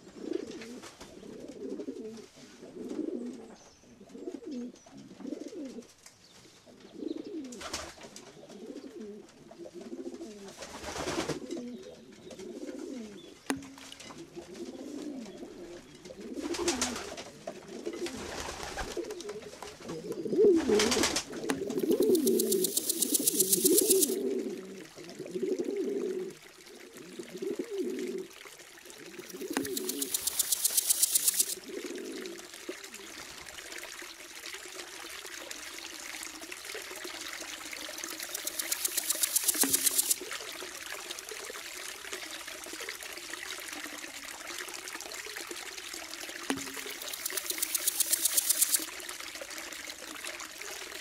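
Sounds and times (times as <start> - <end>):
pigeons cooing: 0.0 - 5.9, 6.8 - 7.7, 8.4 - 10.6, 11.3 - 13.3, 14.2 - 33.1
fast high rattle: 21.6 - 24.2, 29.3 - 31.6, 38.0 - 40.2, 46.5 - 48.9
hissing sweeps: 21.7 - 24.2, 29.3 - 31.6, 38.2 - 40.2.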